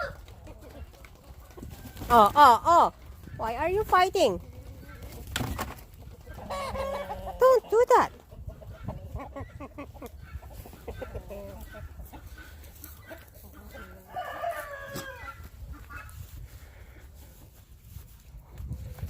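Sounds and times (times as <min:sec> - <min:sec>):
chicken drawn-out call: 0:00.0 - 0:00.8, 0:06.3 - 0:08.0, 0:08.6 - 0:17.0
chickens clucking: 0:00.0 - 0:19.0.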